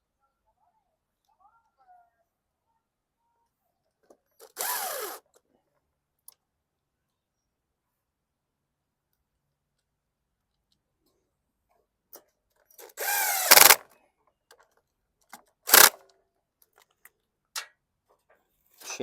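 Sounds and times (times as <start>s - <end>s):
cordless drill motor: 4.4s - 5.2s, 12.9s - 13.8s, 15.7s - 16.0s.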